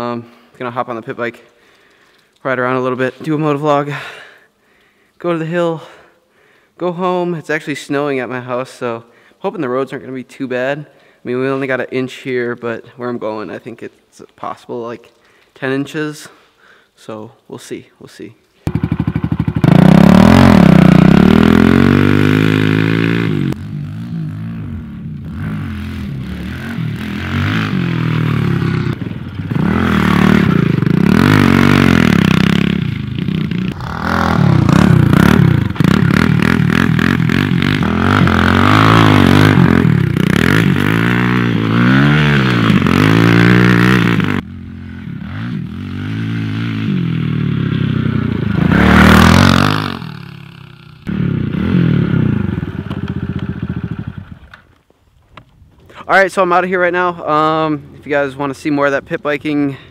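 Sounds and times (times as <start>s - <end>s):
motorbike engine revving: 18.7s - 54.5s.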